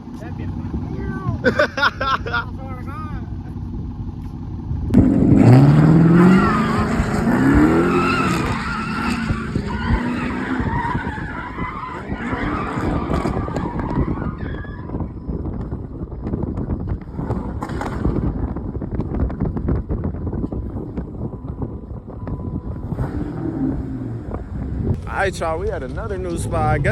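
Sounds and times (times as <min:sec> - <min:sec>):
tyres skidding: 0:00.0 - 0:26.9
car engine revving hard: 0:04.9 - 0:14.2, 0:22.8 - 0:24.9.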